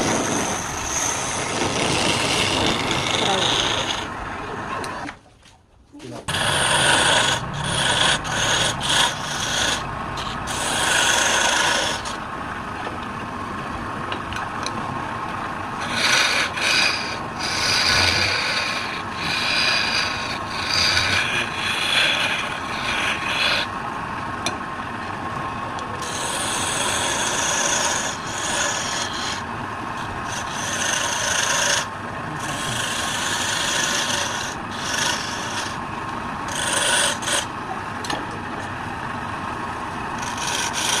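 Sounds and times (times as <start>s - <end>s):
wood lathe rasping hiss: 0.0s - 4.2s, 6.3s - 12.2s, 15.8s - 23.7s, 26.0s - 35.8s, 36.4s - 37.5s, 40.0s - 41.0s.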